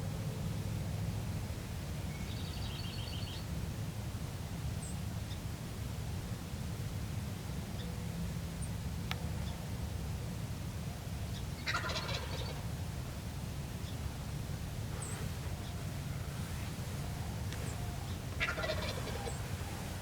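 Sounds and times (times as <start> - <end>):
turkey gobbling: 11.6 - 12.6, 15.0 - 20.0
steady low rumble: 14.1 - 20.0.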